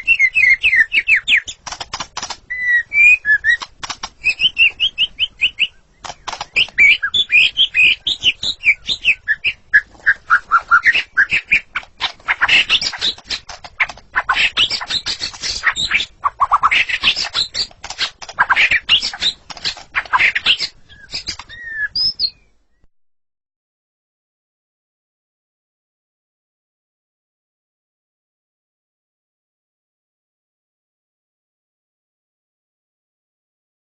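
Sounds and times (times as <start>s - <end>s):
bird singing whistled phrases: 0.0s - 1.6s, 2.5s - 11.7s, 20.1s - 22.5s.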